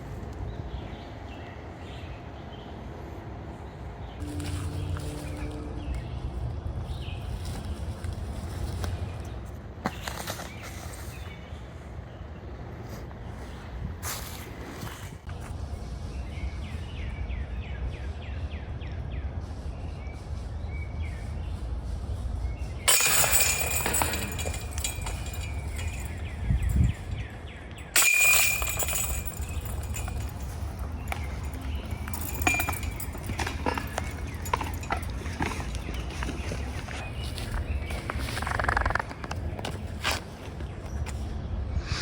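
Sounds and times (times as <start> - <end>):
wind rumbling on microphone: 12.5 - 22.9, 23.9 - 27.6, 29.0 - 42.0
bright clinking and jangling: 22.9 - 27.2, 27.9 - 37.2.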